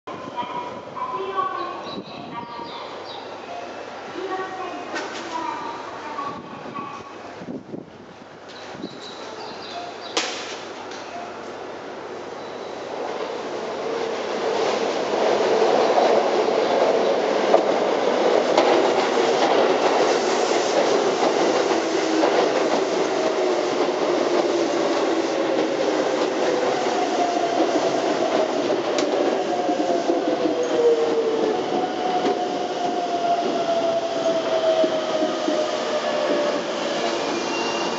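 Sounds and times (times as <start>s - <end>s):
train wheels clattering: 14.5s - 37.9s.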